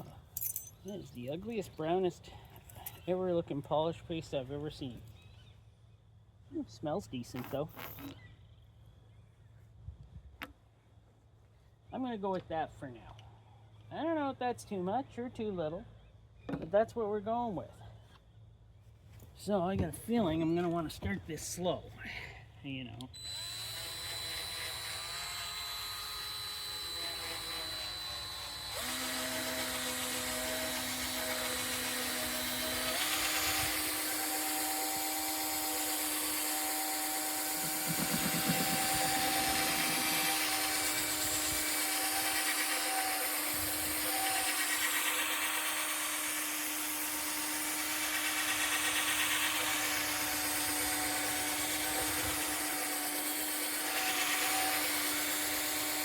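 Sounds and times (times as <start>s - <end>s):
cordless drill buffing plastic: 23.2s - 56.0s.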